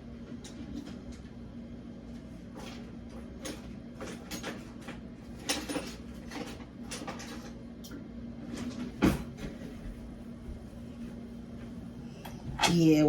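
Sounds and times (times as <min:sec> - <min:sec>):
steady low hum: 0:07.8 - 0:13.0.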